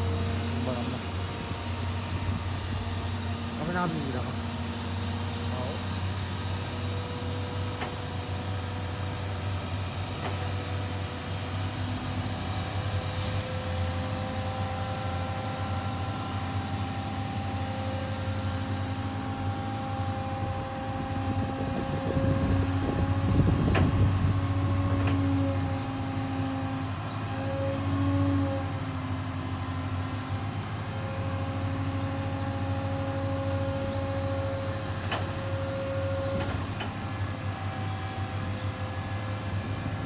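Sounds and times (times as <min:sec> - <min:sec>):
hydraulic tipping gear whine: 0:00.0 - 0:28.8
diesel truck engine running: 0:00.0 - 0:40.0.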